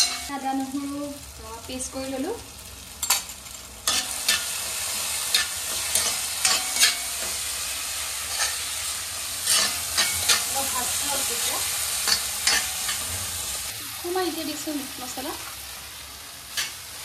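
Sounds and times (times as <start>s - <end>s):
sizzling in hot oil: 0.0s - 17.0s
metal spoon scraping pan: 3.0s - 7.5s, 8.3s - 8.7s, 9.4s - 13.3s.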